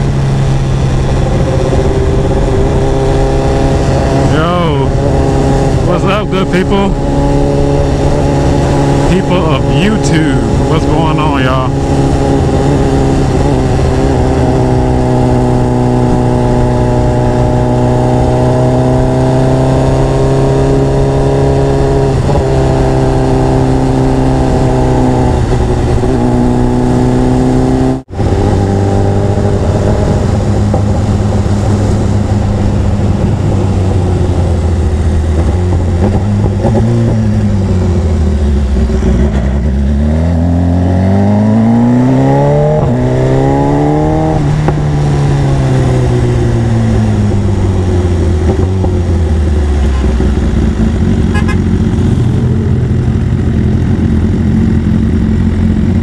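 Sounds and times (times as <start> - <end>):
motorcycle engine accelerating: 0.0 - 56.0
wind noise: 24.0 - 39.8.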